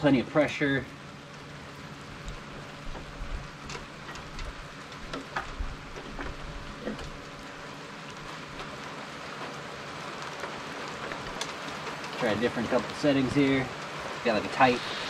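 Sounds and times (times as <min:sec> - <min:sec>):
shower spray hissing: 0:14.3 - 0:15.0.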